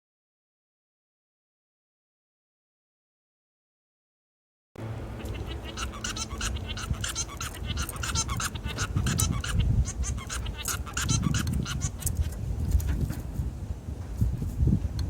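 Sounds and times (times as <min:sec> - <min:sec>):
finch singing: 0:04.8 - 0:13.2
steady low rumble: 0:04.8 - 0:15.0.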